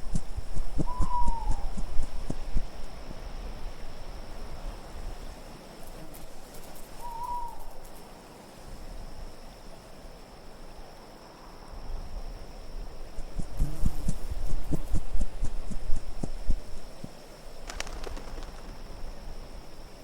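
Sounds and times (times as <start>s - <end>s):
wind noise: 0.0s - 5.5s, 11.6s - 20.0s
owl hoot: 0.7s - 2.0s, 7.0s - 7.8s.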